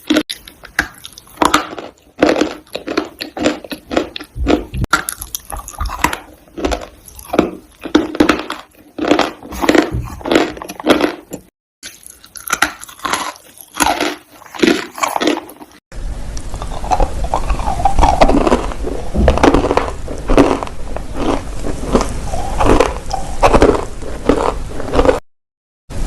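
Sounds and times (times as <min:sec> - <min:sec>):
steady low hum: 0:16.0 - 0:25.2.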